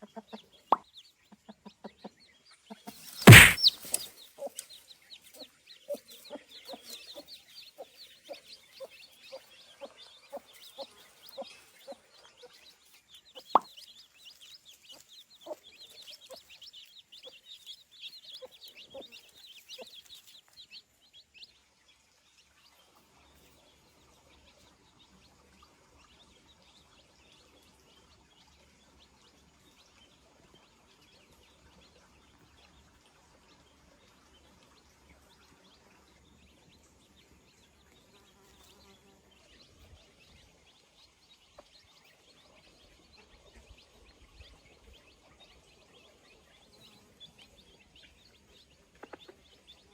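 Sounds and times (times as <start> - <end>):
chickens cheeping: 2.8 - 4.7.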